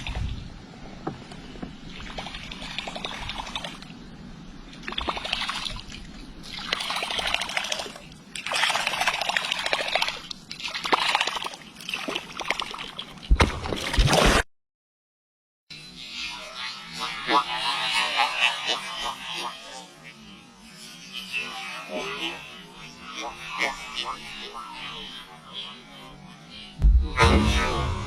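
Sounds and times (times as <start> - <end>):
water splashing and sloshing: 0.0 - 4.0, 4.6 - 14.4.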